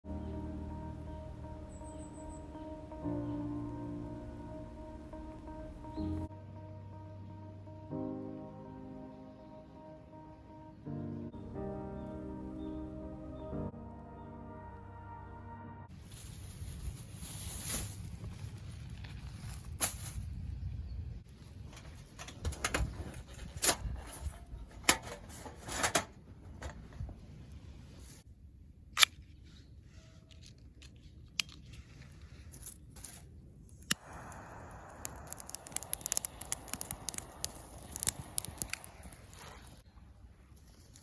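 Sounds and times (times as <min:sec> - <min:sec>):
cooking gear clicks and knocks: 0:21.6 - 0:27.1
steady gas hiss: 0:34.0 - 0:39.3.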